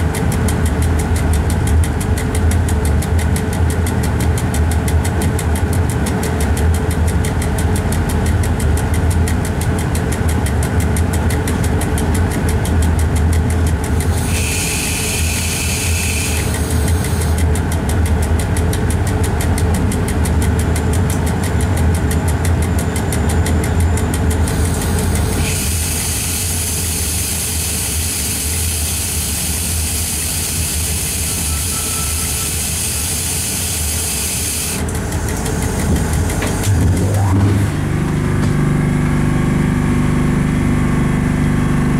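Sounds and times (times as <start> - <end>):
train cab hum and rumble: 0.0 - 41.9
hiss with high whistling tone: 14.4 - 16.5, 29.2 - 34.6.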